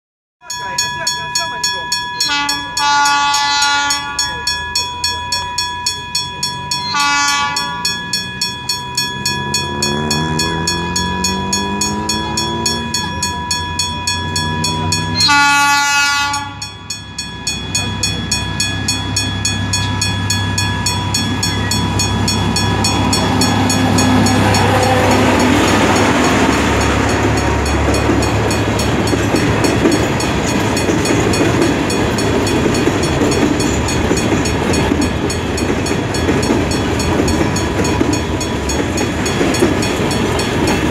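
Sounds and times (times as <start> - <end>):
diesel locomotive: 0.4 - 40.9
train horn blast: 2.2 - 4.2, 6.8 - 7.9, 14.9 - 16.7, 23.3 - 26.8
wheels clicking over rail joints: 7.6 - 15.2, 17.1 - 40.9.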